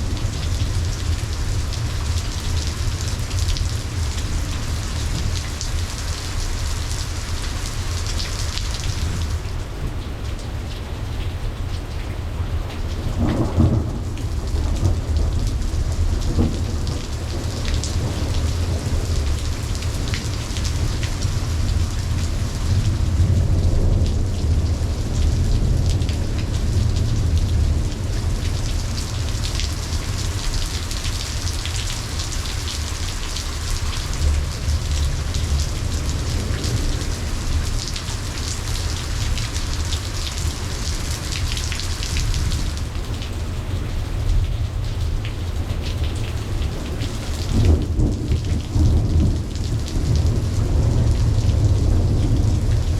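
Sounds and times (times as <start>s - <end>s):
steady rain falling: 0.0s - 52.9s
rolling thunder: 13.1s - 30.4s, 46.8s - 52.9s.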